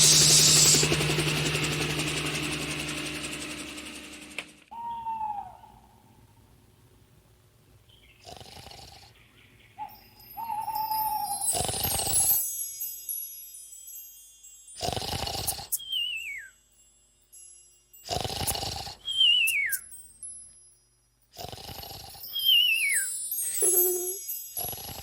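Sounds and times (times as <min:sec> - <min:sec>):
falling whistle: 0:00.0 - 0:00.9, 0:19.1 - 0:19.9
rasping snore: 0:08.2 - 0:09.2, 0:11.4 - 0:12.4, 0:14.8 - 0:15.8, 0:18.0 - 0:19.1, 0:21.4 - 0:22.4, 0:24.5 - 0:25.0.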